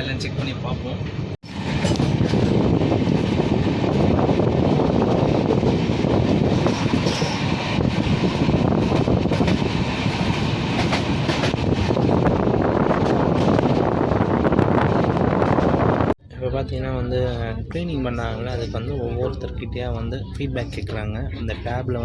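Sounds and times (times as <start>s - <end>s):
train wheels rumbling on rails: 0.0s - 16.2s.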